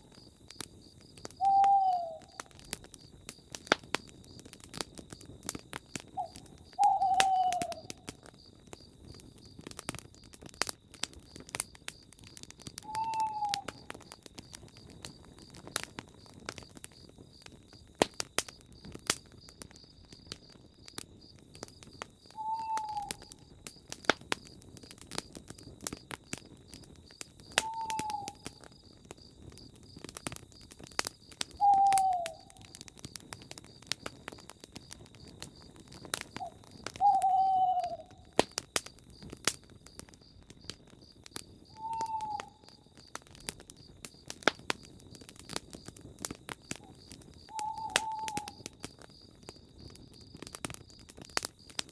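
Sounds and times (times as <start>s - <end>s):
campfire crackling and popping: 0.0s - 51.9s
owl hooting: 1.4s - 2.4s, 6.1s - 8.0s, 12.8s - 13.8s, 22.4s - 23.3s, 27.6s - 28.5s, 31.6s - 32.7s, 36.4s - 38.3s, 41.7s - 42.7s, 47.5s - 48.6s.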